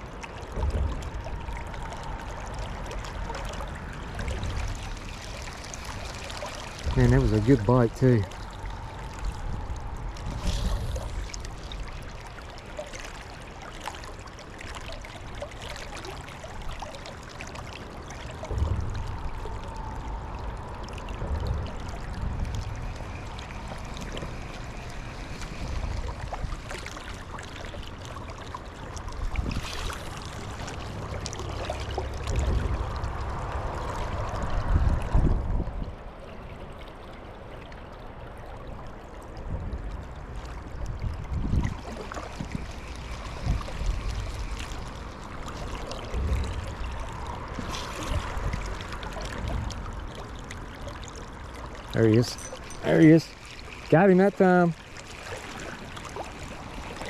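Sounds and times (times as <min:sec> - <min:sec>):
river rushing: 0:41.7 - 0:57.0.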